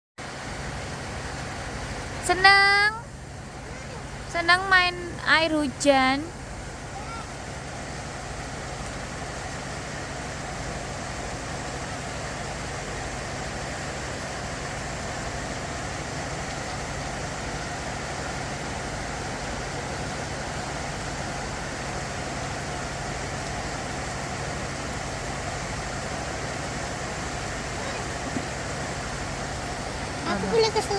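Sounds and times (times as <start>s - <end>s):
steady rain hiss: 0.2s - 30.9s.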